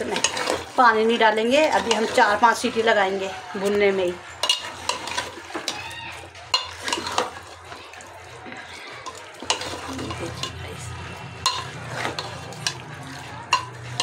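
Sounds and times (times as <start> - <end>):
spoon clinking against pot: 0.0 - 0.7, 1.6 - 2.5, 3.6 - 7.6, 8.9 - 14.0
chicken sizzling in a pot: 0.0 - 14.0.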